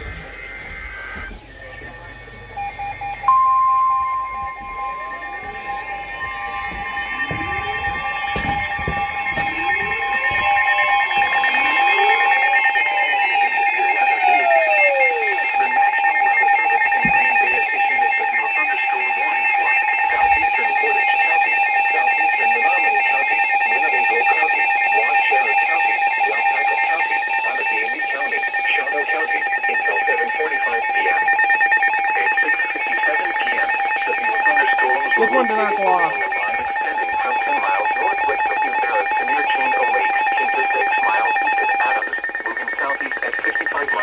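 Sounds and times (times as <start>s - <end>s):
pulsing emergency alert tones: 0.0s - 44.0s
faint voice: 32.1s - 44.0s.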